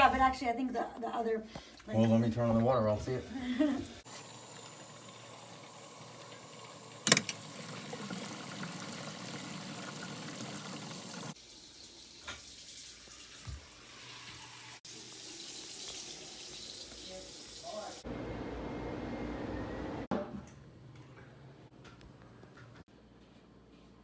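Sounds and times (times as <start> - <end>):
tap water running into sink: 3.8 - 18.0.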